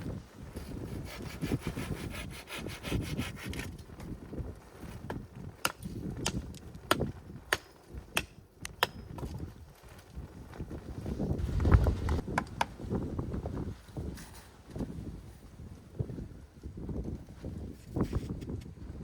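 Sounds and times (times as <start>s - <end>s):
handsaw sawing wood: 0.9s - 3.6s.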